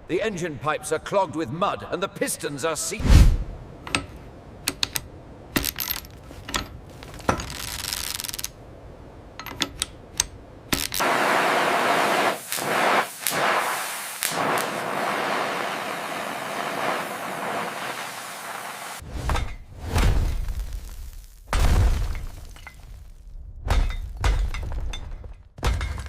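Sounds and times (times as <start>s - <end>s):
sharp metallic clicks and knocks: 3.8s - 8.5s, 9.3s - 11.0s
loud steady hiss: 10.7s - 19.0s.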